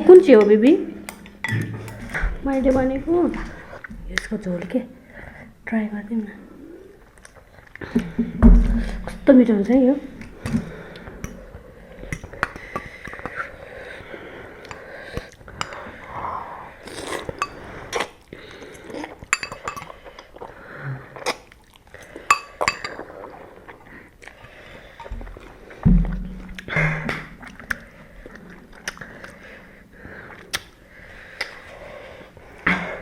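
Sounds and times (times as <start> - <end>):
chewing and eating noodles: 6.8 - 8.0, 10.3 - 25.9, 26.6 - 33.0
utensils clinking against dishes: 19.3 - 19.9.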